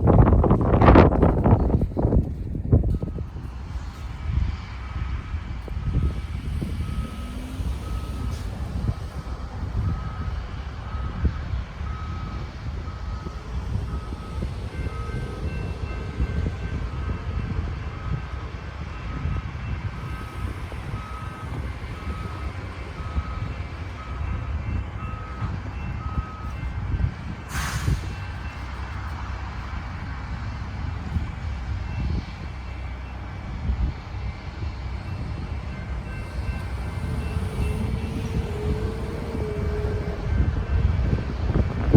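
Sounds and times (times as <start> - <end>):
low rumble: 0.0 - 32.8, 33.4 - 41.9
vehicle backup alarms beeping: 2.8 - 3.7, 5.7 - 29.1, 35.0 - 41.9
sharp hiss of air: 27.5 - 28.3.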